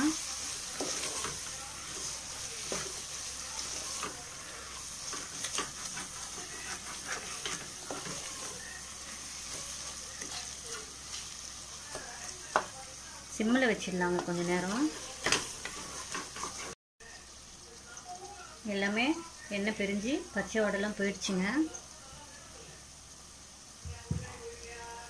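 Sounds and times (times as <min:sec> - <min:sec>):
spices sizzling in oil: 0:00.0 - 0:25.0
spatula scraping a pot: 0:00.2 - 0:11.4, 0:14.2 - 0:16.8.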